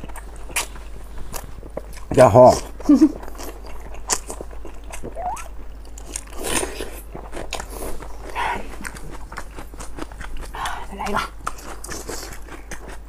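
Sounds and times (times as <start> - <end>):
wet biting and chewing: 0.0 - 13.0.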